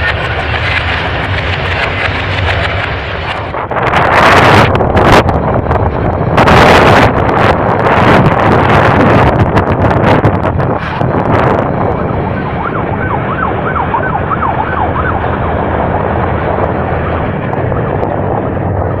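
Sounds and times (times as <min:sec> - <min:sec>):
train rumbling: 0:00.0 - 0:19.0
wind buffeting microphone: 0:00.0 - 0:19.0
warbling siren-like tone: 0:11.2 - 0:18.7.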